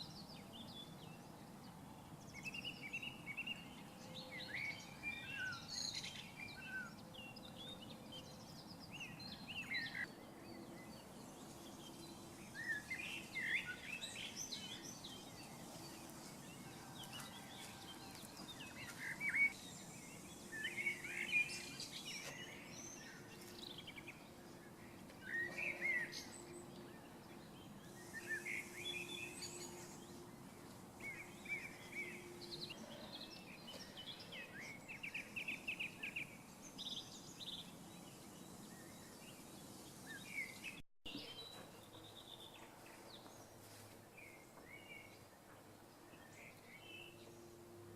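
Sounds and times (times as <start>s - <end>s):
birds chirping: 0.0s - 43.6s.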